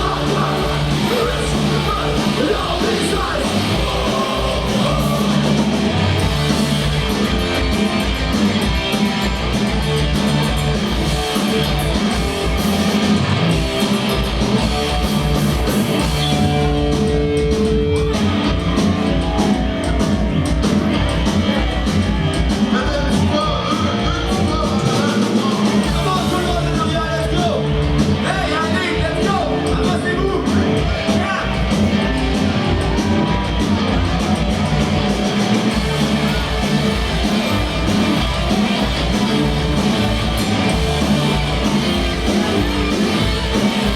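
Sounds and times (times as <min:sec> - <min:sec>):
sung vocals: 0:00.0 - 0:06.3, 0:21.5 - 0:33.2
bass: 0:00.0 - 0:43.9
distorted electric guitars: 0:00.0 - 0:43.9
drums: 0:00.0 - 0:43.9.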